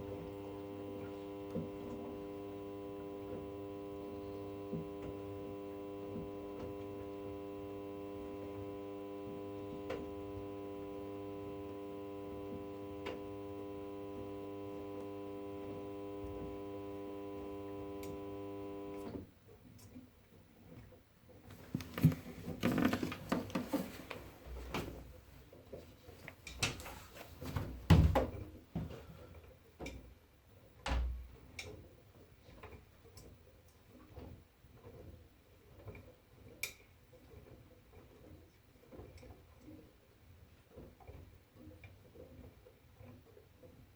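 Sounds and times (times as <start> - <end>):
washing machine motor hum: 0.0 - 19.3, 21.5 - 25.3.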